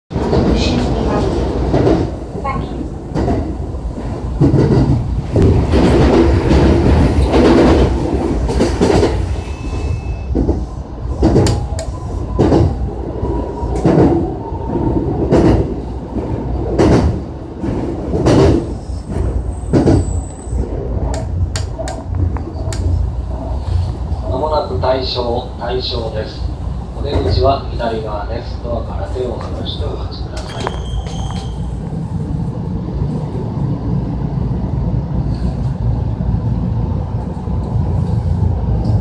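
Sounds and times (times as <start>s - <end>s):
rail joint clacks: 0.1s - 12.8s, 13.7s - 26.4s, 27.0s - 28.1s, 29.0s - 32.0s
train wheels rumbling on rails: 0.1s - 39.0s.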